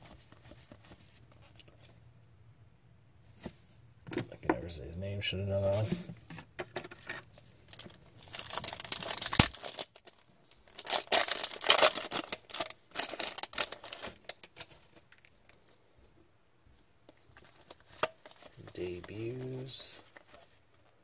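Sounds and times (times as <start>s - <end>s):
wrapper tearing and crinkling: 7.7s - 15.3s
cards rustling and flicking: 17.2s - 21.0s.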